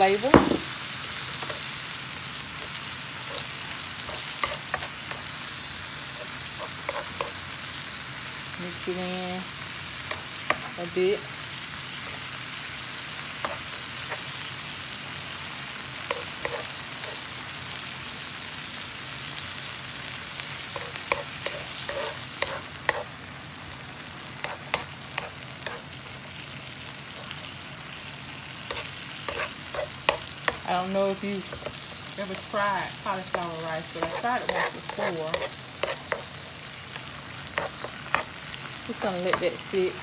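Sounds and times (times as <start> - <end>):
food sizzling on a griddle: 0.0 - 40.0
wooden spoon stirring and scraping: 6.2 - 7.4, 16.1 - 17.2, 20.8 - 23.1, 28.7 - 30.8, 33.8 - 36.3.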